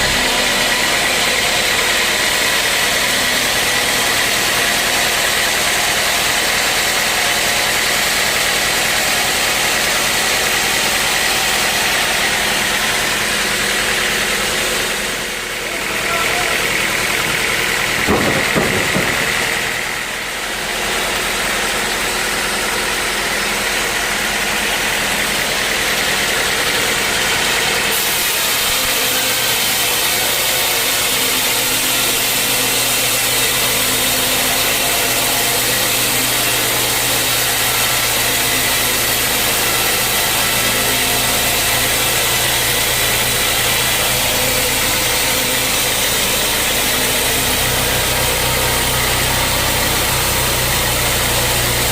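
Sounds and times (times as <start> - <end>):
sawmill machinery droning: 0.0 - 51.9
short knocks: 17.3 - 19.8.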